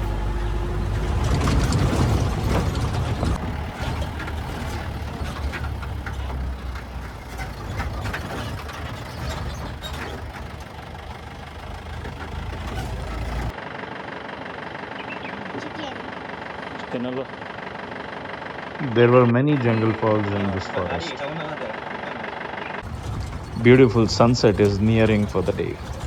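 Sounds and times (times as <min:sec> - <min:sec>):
knocks and rattles: 0:00.0 - 0:13.5, 0:22.8 - 0:26.0
jeep engine rumbling: 0:00.0 - 0:13.6, 0:22.8 - 0:26.0.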